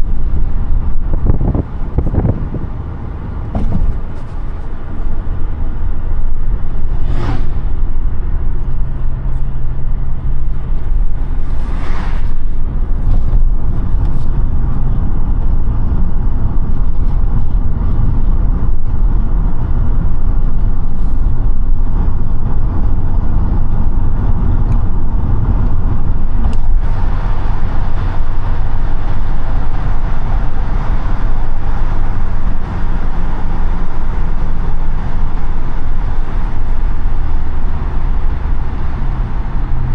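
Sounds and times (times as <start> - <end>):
car engine drone: 0.0 - 39.9
tyre and wind noise: 0.0 - 39.9
brief whooshes: 6.8 - 7.9, 11.4 - 12.6.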